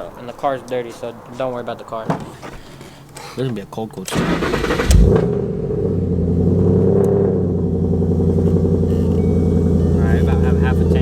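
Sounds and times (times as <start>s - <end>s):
car engine idling: 4.1s - 11.0s.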